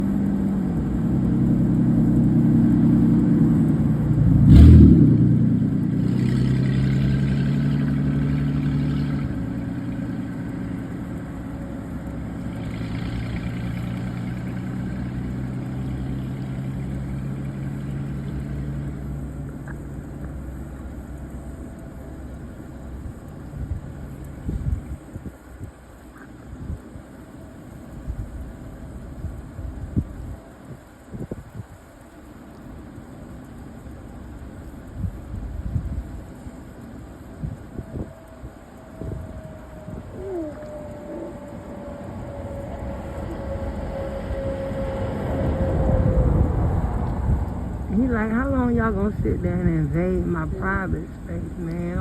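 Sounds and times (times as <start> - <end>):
vehicle engine running: 0.0 - 52.0.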